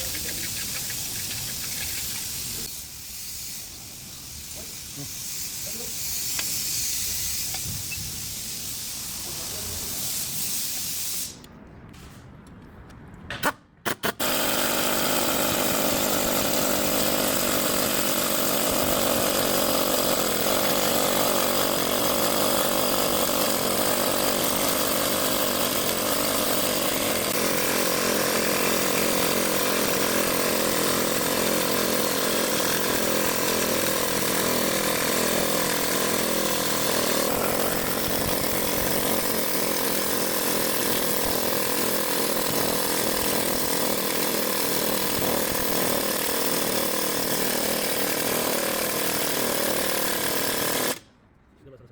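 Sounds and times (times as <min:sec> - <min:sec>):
power tool running under load: 0:14.0 - 0:51.1.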